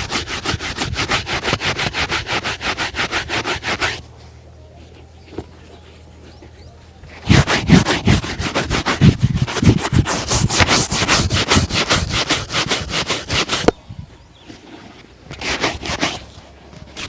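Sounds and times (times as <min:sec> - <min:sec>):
leather shoe being buffed: 0:00.0 - 0:04.0, 0:07.2 - 0:13.7, 0:15.3 - 0:17.0.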